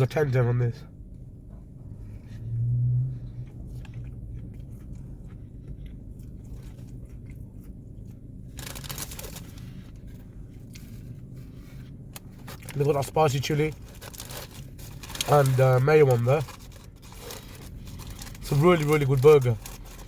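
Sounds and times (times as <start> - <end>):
short low hum: 0.0 - 12.8
chewing crunchy fried food: 3.4 - 20.0.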